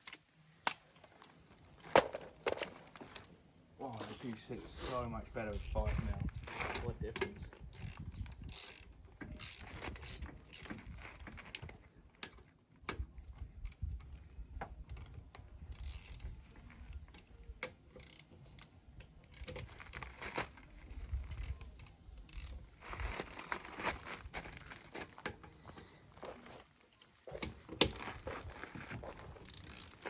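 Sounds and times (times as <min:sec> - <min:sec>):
ratchet wrench clicking: 0:07.6 - 0:10.7, 0:15.6 - 0:16.4, 0:17.9 - 0:20.0, 0:21.2 - 0:23.0, 0:29.4 - 0:30.0.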